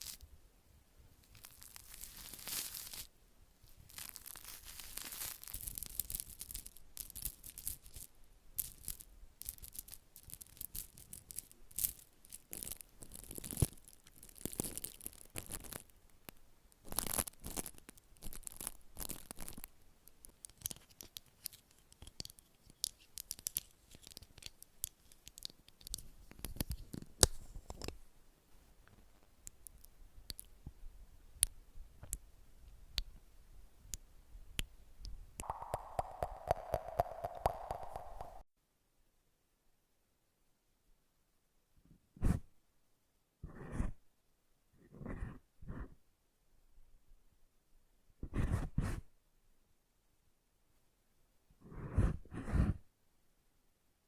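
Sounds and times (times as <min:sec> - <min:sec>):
close scratching and crinkling: 0:01.2 - 0:15.9, 0:16.8 - 0:28.0.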